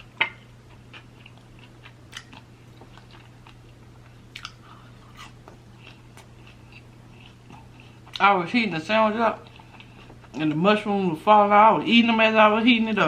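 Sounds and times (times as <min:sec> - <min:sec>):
person chewing food: 0:00.0 - 0:08.2, 0:09.4 - 0:10.6
faint low hum: 0:00.0 - 0:13.0
wet mouth clicks and smacks: 0:02.1 - 0:03.0, 0:04.3 - 0:04.6.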